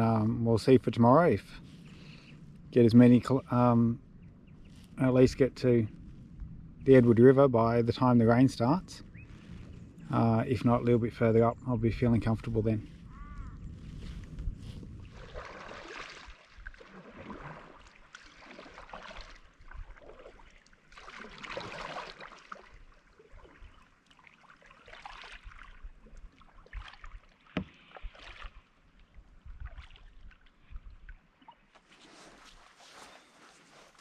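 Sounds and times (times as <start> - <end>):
paddle splashing in water: 9.0 - 9.8, 12.9 - 34.0.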